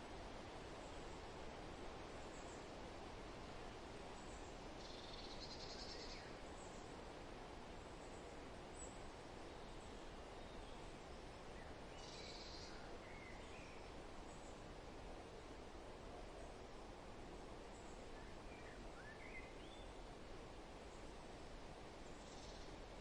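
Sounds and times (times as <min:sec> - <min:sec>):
wind through foliage: 0:00.0 - 0:23.0
faint bird chirps: 0:04.2 - 0:06.9, 0:11.6 - 0:14.6, 0:17.7 - 0:20.0, 0:22.0 - 0:22.8.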